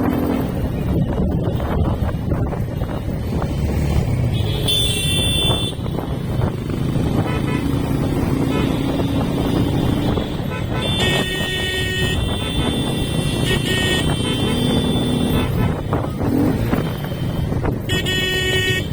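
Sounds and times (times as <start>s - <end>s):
motorcycle engine rumble: 0.0s - 18.9s
road traffic: 0.0s - 18.9s
vehicle horns honking: 4.3s - 6.0s, 7.1s - 16.1s, 16.9s - 18.9s.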